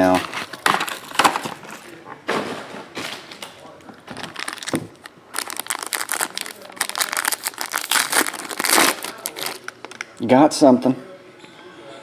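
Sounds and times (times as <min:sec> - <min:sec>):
plastic wrapping crinkling: 0:00.0 - 0:02.0, 0:03.0 - 0:10.2.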